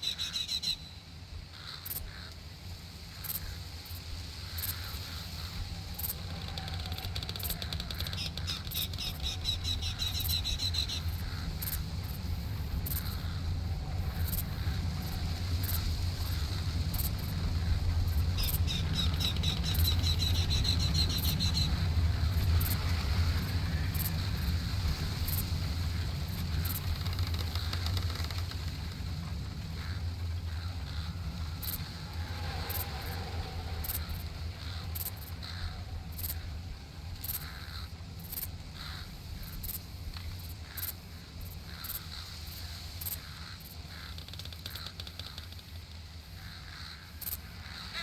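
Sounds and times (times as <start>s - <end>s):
songbird trilling: 0.0s - 1.0s, 5.9s - 11.9s, 18.0s - 22.8s
steady low rumble: 0.0s - 44.1s.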